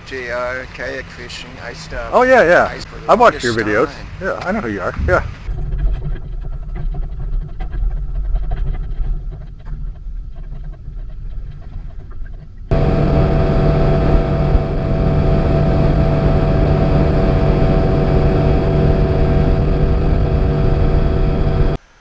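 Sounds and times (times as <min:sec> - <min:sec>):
outboard motor droning: 0:00.0 - 0:05.5, 0:12.7 - 0:21.8.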